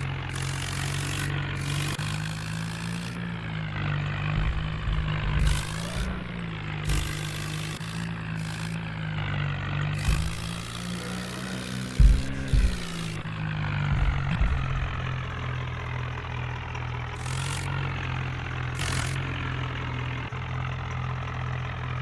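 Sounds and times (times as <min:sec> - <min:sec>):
tractor engine running: 0:00.0 - 0:22.0
heavy thump: 0:04.1 - 0:07.8, 0:10.0 - 0:10.8, 0:11.7 - 0:15.5.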